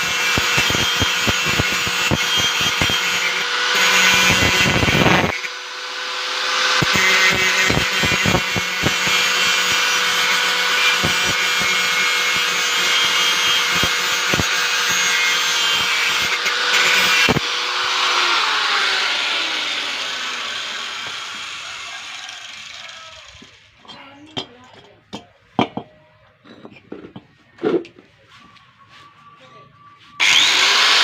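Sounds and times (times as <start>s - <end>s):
angle grinder whining: 0.0s - 24.0s, 30.2s - 31.0s.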